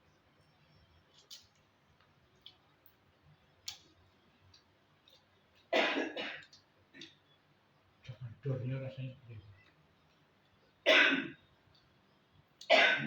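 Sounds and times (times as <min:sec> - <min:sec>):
person coughing: 0:05.8 - 0:06.4, 0:10.9 - 0:11.4, 0:12.7 - 0:13.0.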